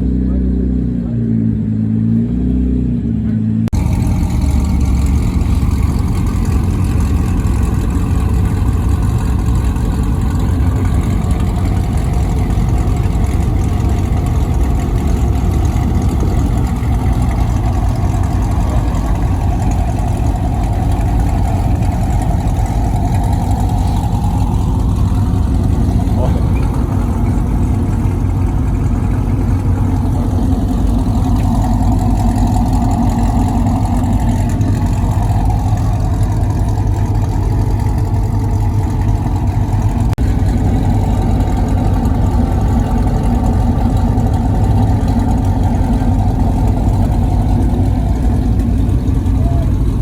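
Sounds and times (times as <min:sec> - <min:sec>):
car engine low rumble: 0:00.0 - 0:50.0.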